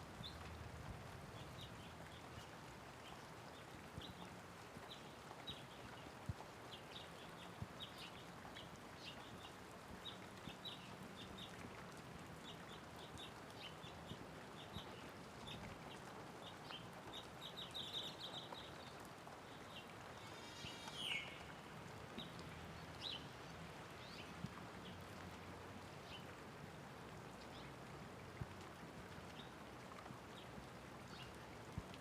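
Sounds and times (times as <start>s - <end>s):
light rain hiss: 0.0s - 32.0s
small birds chirping: 1.3s - 25.0s.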